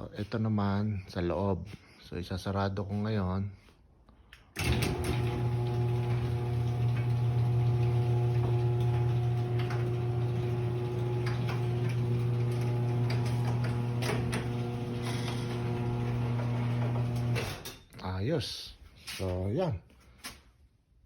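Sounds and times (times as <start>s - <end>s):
garage door opener motor hum: 4.6s - 17.8s.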